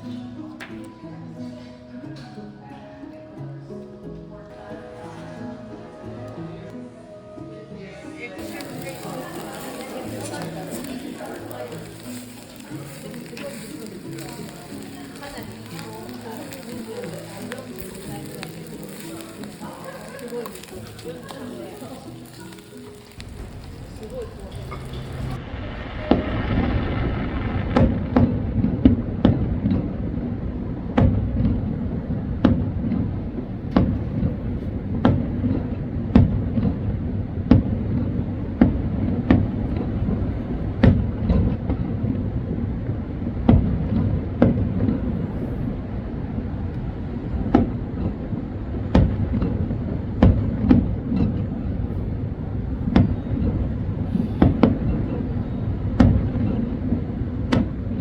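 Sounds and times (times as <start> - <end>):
fireworks bangs: 8.4 - 58.0
low rumble of bursts: 23.0 - 58.0.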